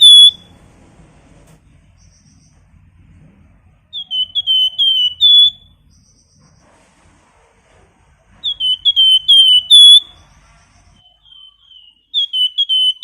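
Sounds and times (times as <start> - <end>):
songbird whistling high notes: 0.0 - 0.4, 3.9 - 6.2, 8.4 - 10.1, 11.0 - 13.0.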